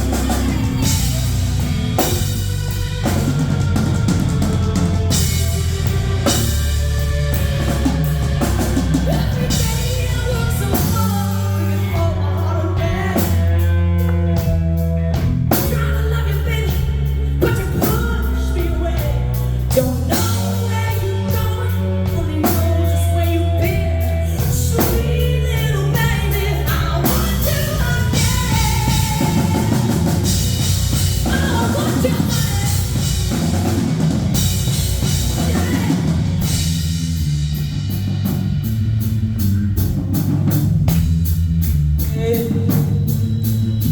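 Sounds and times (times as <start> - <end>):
woman singing: 0.0 - 1.4, 9.0 - 14.6, 15.5 - 33.8, 35.2 - 36.6
live rock band playing: 0.0 - 43.9.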